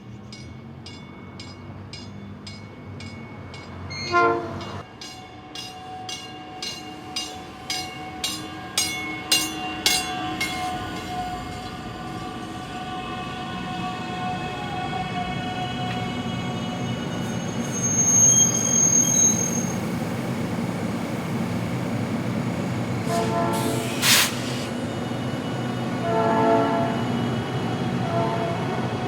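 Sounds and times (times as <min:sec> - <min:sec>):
electric train rumbling: 0:00.0 - 0:29.0
train horn blasts: 0:03.9 - 0:04.8, 0:23.0 - 0:24.1, 0:26.0 - 0:27.3, 0:27.9 - 0:29.0
high wheel squeal: 0:06.8 - 0:20.3, 0:23.0 - 0:28.0
short hiss: 0:23.6 - 0:24.8.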